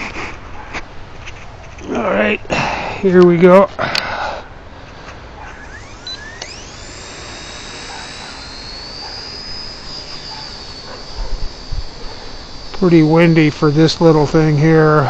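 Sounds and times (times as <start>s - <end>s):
electric motor whine: 4.8s - 15.0s.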